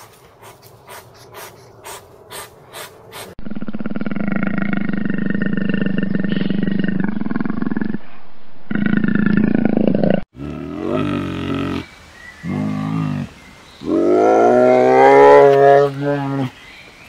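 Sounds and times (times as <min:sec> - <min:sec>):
leopard growling: 0:03.4 - 0:11.9.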